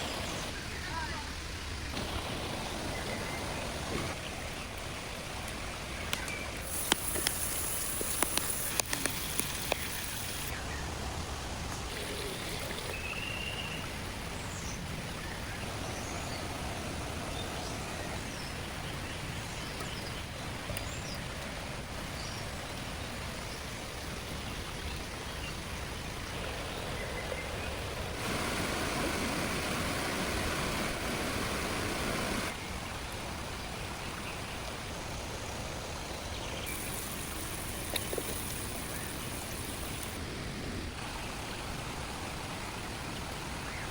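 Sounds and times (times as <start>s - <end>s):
running water: 0.0s - 43.9s
sharp clicks: 6.1s - 10.5s.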